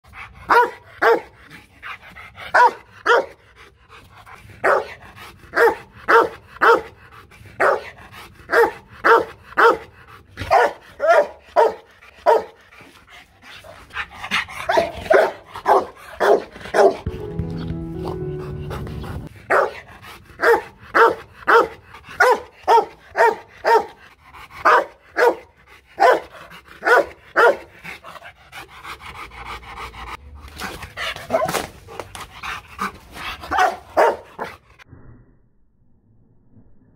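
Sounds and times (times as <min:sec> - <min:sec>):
dog barking: 0:00.5 - 0:01.4, 0:02.5 - 0:03.4, 0:04.6 - 0:07.0, 0:07.6 - 0:07.9, 0:08.5 - 0:12.6, 0:14.7 - 0:17.0, 0:19.5 - 0:19.8, 0:20.4 - 0:24.0, 0:24.6 - 0:27.7, 0:31.2 - 0:31.6, 0:33.5 - 0:34.5.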